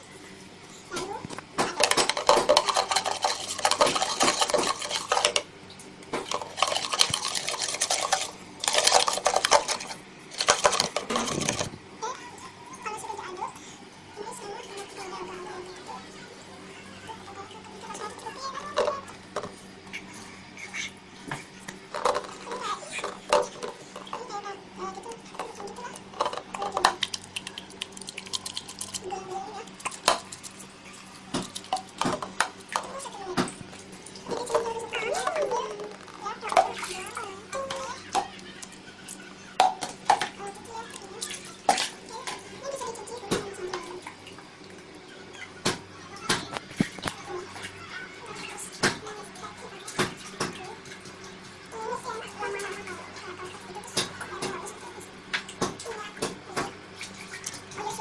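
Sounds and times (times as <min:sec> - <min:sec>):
utensil scraping a plate: 0:01.8 - 0:05.5, 0:06.2 - 0:11.8.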